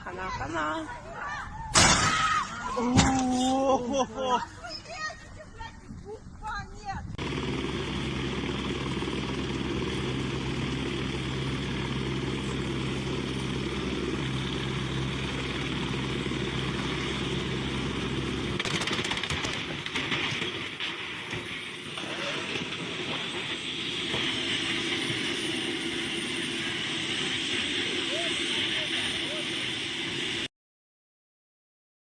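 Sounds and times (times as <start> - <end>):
vehicle engine droning: 7.2 - 18.8.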